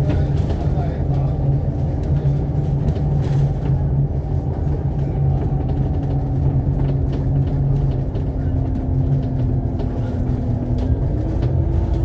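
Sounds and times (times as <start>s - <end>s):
bus engine droning: 0.0s - 12.0s
road noise: 0.0s - 12.0s.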